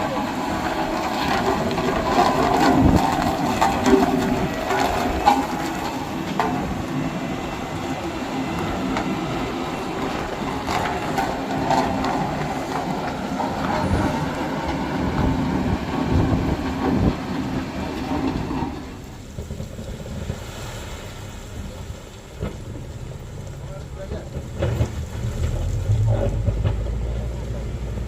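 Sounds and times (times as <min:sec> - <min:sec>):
metallic clatter: 0:00.0 - 0:15.4
heavy diesel engine running: 0:00.0 - 0:28.0.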